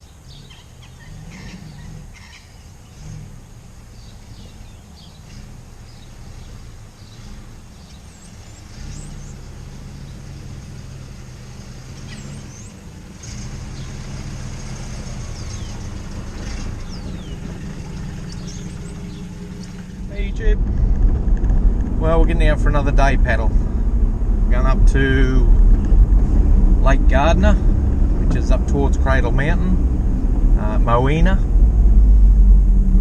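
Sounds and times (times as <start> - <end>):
small birds chirping: 0.0 - 20.5
vehicle engine running: 0.0 - 33.0.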